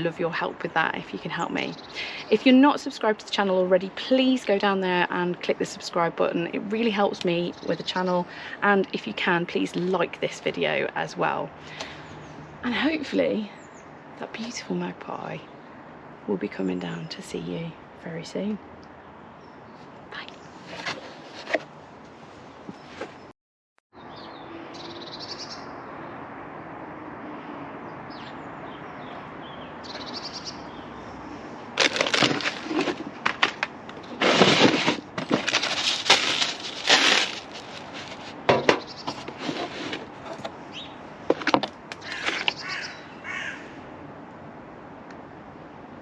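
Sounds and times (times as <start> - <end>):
steady outdoor hiss: 0.0 - 23.1, 24.0 - 46.0
crow rasping calls: 42.0 - 43.9.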